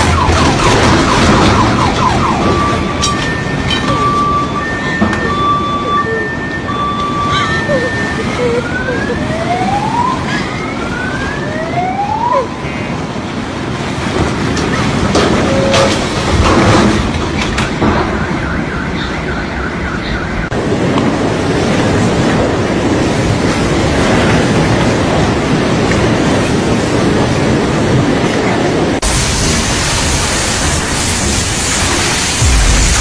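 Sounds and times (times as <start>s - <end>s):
loud steady rushing noise: 0.0s - 7.3s, 7.9s - 33.0s
siren whooping: 0.0s - 12.7s.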